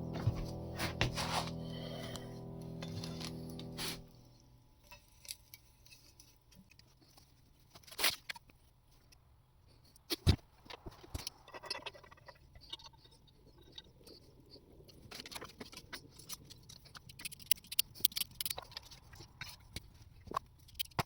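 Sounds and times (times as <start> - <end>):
faint low rumble: 0.0 - 4.6.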